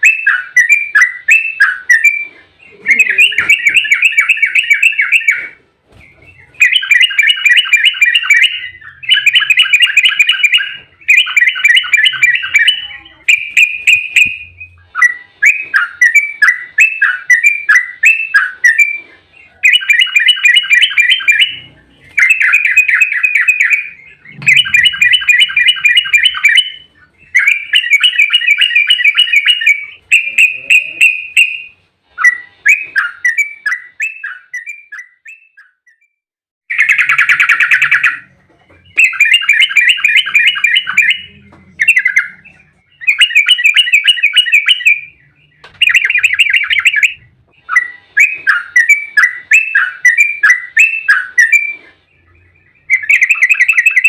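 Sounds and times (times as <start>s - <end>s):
bird singing rapid bubbly song: 19.6s - 31.7s.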